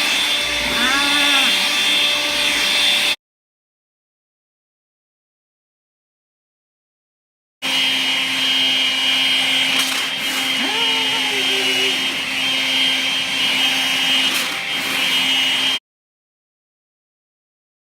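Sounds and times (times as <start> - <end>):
vacuum cleaner running: 0.0 - 3.2, 7.6 - 15.8
rising pitched call: 0.5 - 2.4.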